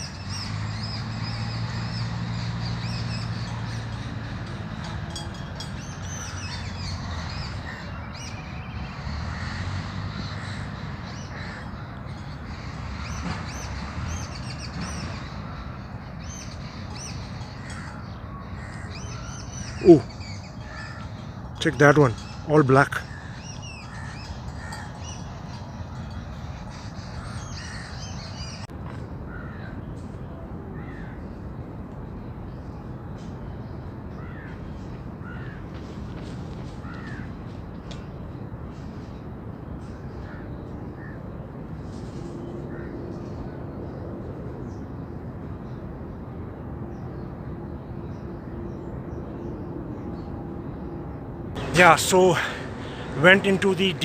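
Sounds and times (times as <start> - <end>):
low outdoor rumble: 0.0 - 8.1
birds calling: 0.0 - 28.7, 33.2 - 45.9, 51.6 - 54.0
crows cawing: 9.2 - 12.4, 17.4 - 28.6, 29.3 - 29.8, 30.8 - 31.2, 34.2 - 34.6, 35.2 - 35.7, 36.8 - 37.4, 42.7 - 42.9.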